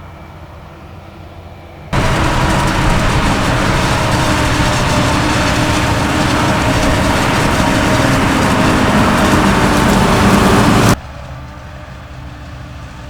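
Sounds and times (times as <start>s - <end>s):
heavy farm machinery running: 2.0s - 11.0s.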